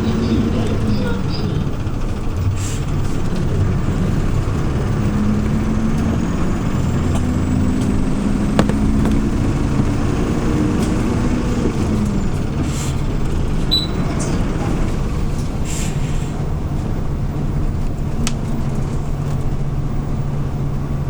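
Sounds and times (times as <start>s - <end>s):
bus engine drone from inside: 0.0s - 21.0s.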